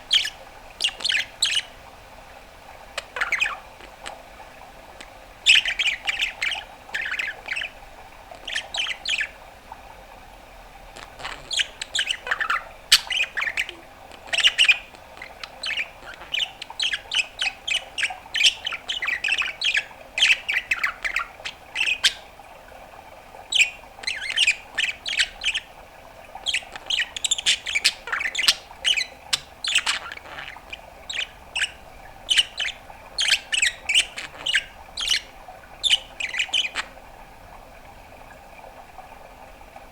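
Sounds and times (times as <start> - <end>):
budgerigar chattering: 0.1 - 1.7, 3.0 - 4.2, 5.4 - 7.8, 8.4 - 9.3, 11.0 - 22.2, 23.5 - 25.7, 26.4 - 37.0.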